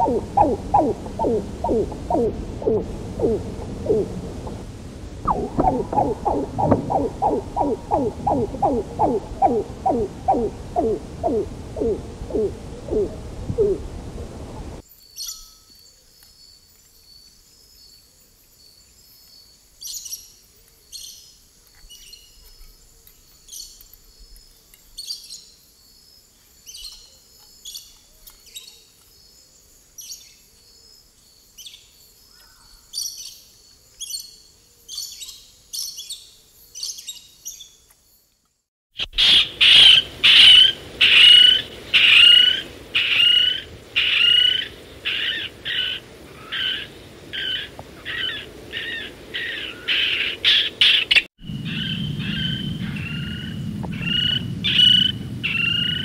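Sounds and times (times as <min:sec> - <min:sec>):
kingfisher calls: 0:05.2 - 0:13.8.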